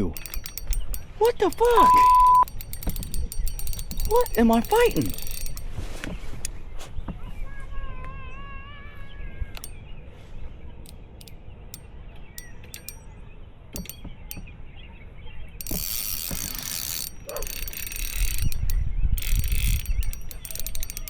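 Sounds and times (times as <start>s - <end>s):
fishing reel drag buzzing: 0.0s - 6.6s, 10.9s - 13.1s, 13.8s - 14.4s, 15.6s - 21.0s.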